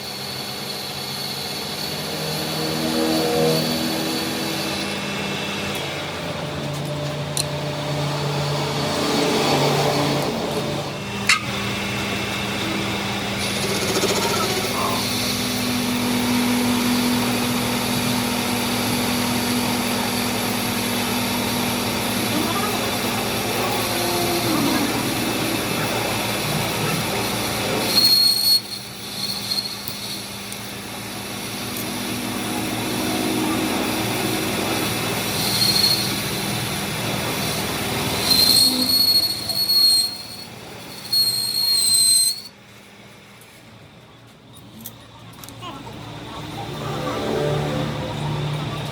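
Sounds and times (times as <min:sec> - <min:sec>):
machine motor running: 0:00.0 - 0:41.1, 0:45.9 - 0:48.9
high-pitched metal squeal: 0:01.1 - 0:05.3, 0:22.3 - 0:30.5, 0:32.7 - 0:36.7, 0:37.5 - 0:42.6.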